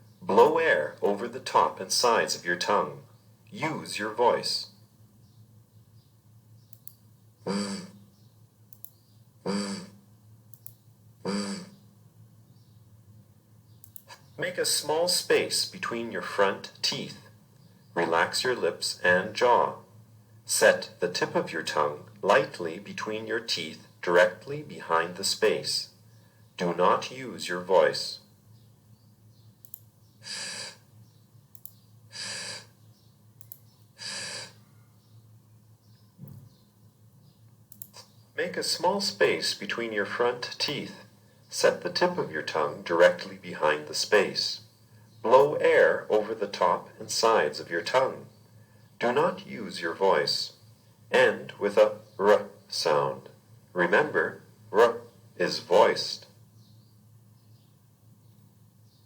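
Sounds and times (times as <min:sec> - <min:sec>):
faint clicks: 0:06.6 - 0:07.0, 0:08.7 - 0:09.1, 0:10.5 - 0:10.8, 0:13.8 - 0:14.3, 0:29.6 - 0:32.6, 0:33.4 - 0:33.8, 0:37.4 - 0:38.2
person making buzzing z sound: 0:07.5 - 0:08.0, 0:09.5 - 0:10.0, 0:11.2 - 0:11.8, 0:30.2 - 0:30.8, 0:32.1 - 0:32.7, 0:34.0 - 0:34.6.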